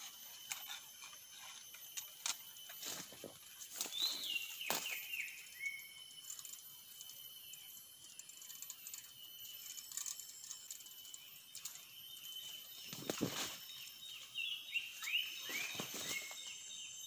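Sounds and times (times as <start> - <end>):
bird whistling notes: 3.9 - 6.0, 14.4 - 16.5.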